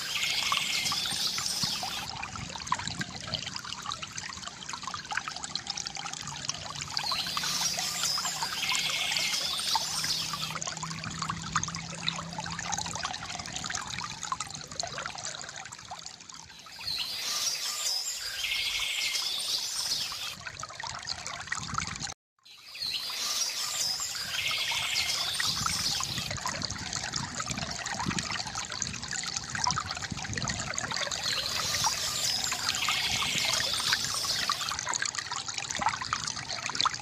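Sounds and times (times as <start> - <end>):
songbird singing: 0.0 - 2.1, 7.0 - 10.6, 16.6 - 20.4, 22.5 - 26.3, 31.1 - 34.7
stream trickling and splashing: 0.0 - 37.0.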